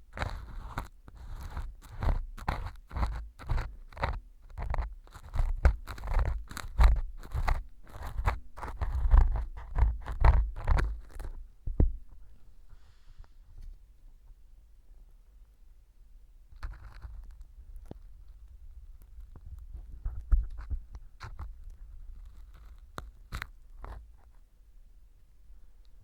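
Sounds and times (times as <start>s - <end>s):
ear pick scraping gritty material: 0.0s - 12.3s, 16.6s - 24.4s.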